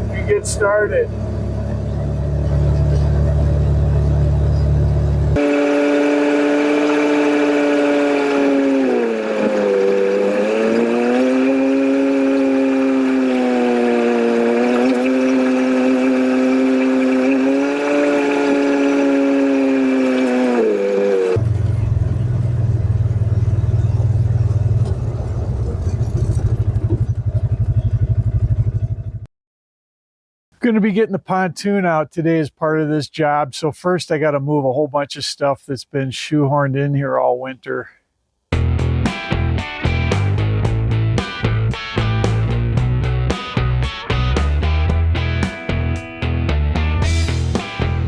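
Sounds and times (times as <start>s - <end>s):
heavy low vehicle rumble: 0.0s - 5.4s, 6.4s - 29.3s, 38.6s - 48.0s
droning engine tone: 0.0s - 29.3s.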